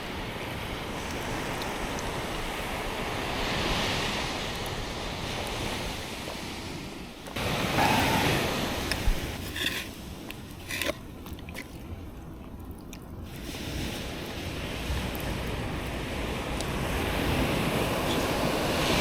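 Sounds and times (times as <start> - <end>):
short clicks and scrapes: 8.9 - 11.0.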